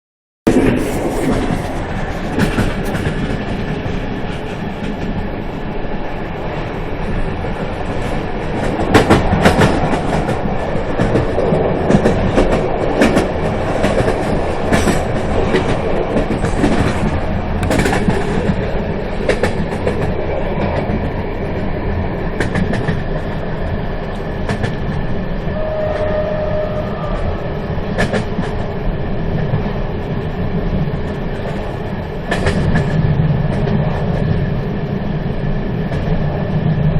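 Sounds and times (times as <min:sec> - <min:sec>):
train wheels rumbling on track: 0:00.5 - 0:36.9
wheels clacking over rail joints: 0:00.6 - 0:05.6, 0:07.1 - 0:21.2, 0:30.7 - 0:34.4.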